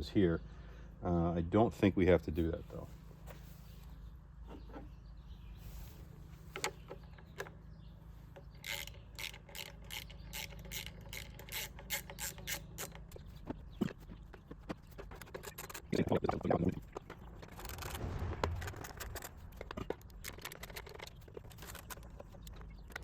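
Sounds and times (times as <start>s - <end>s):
hand ratchet clicking: 8.6s - 13.4s.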